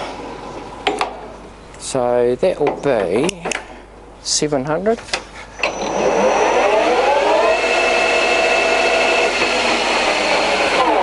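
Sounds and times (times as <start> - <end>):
lathe motor whine: 5.6 - 11.0.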